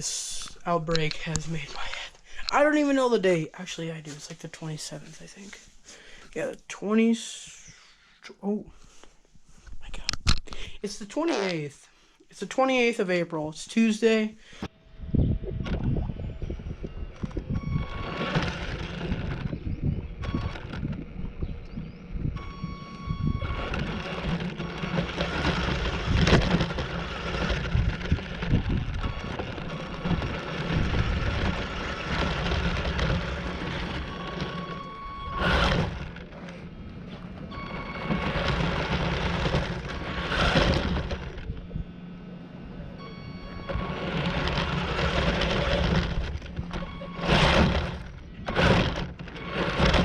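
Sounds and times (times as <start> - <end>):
rc car motor and wheels: 16.2 - 36.8, 37.5 - 41.8, 43.0 - 50.0.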